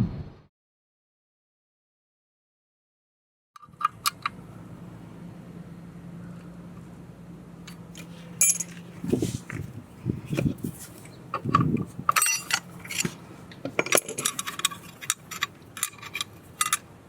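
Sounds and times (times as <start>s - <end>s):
steady low hum: 4.0s - 17.0s
metal tooling clinking: 7.7s - 16.9s.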